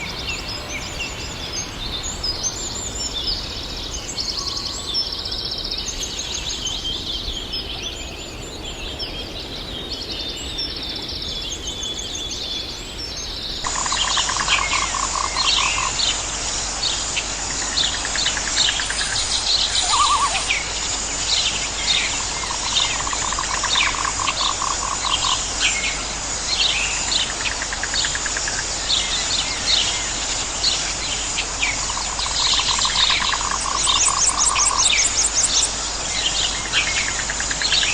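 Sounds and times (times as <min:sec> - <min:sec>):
pulsed bird trills: 0:13.6 - 0:16.3, 0:17.9 - 0:20.8
birds chirping and calling: 0:13.6 - 0:37.9.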